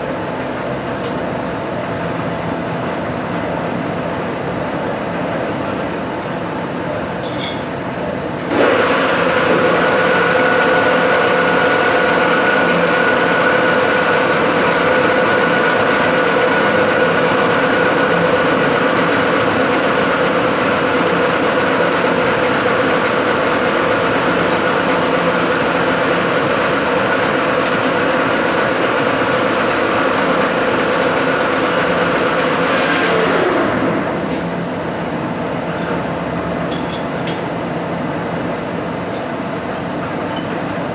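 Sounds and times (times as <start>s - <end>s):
machine tool running with whine: 0.3s - 40.9s.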